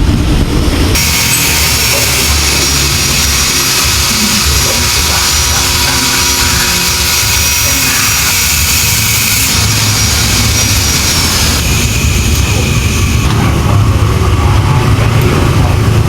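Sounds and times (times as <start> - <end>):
rushing mechanical hiss: 0.1 - 16.0
low engine-like hum: 9.6 - 16.0.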